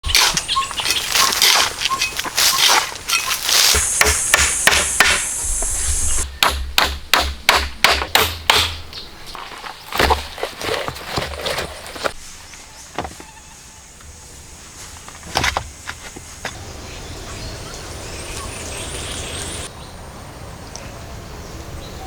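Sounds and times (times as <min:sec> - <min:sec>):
high insect buzz: 0:00.0 - 0:06.2, 0:16.5 - 0:19.7
sharp knocks on wood: 0:03.6 - 0:05.4, 0:06.4 - 0:08.8.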